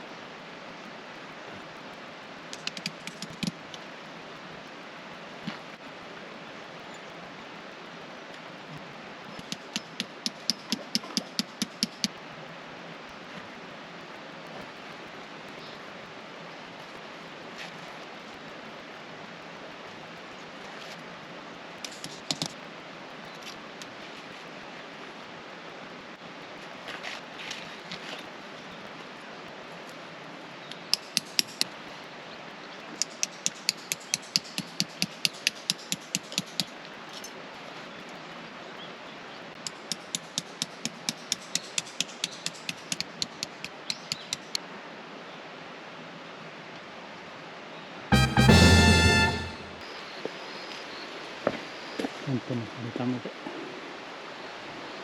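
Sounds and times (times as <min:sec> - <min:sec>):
quick sharp clicks: 0:02.5 - 0:03.6, 0:09.4 - 0:12.1, 0:21.8 - 0:22.6, 0:30.7 - 0:31.7, 0:33.0 - 0:36.7, 0:39.6 - 0:44.6.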